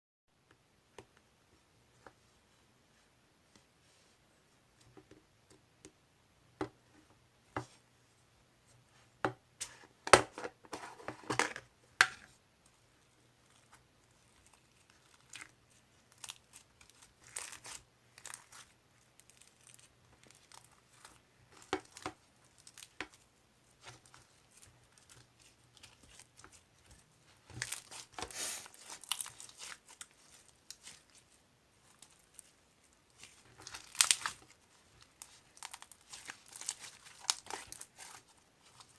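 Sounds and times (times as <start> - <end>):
wrapping material crinkling and tearing: 13.4 - 38.9.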